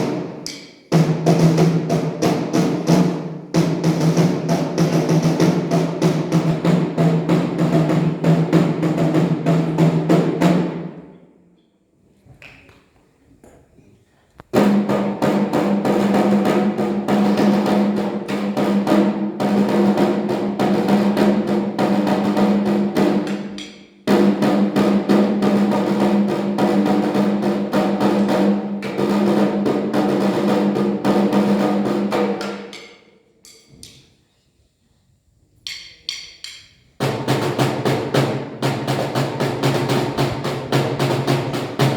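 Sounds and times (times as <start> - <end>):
snare drums playing a march: 0.0 - 11.1, 14.5 - 32.8, 37.0 - 41.9.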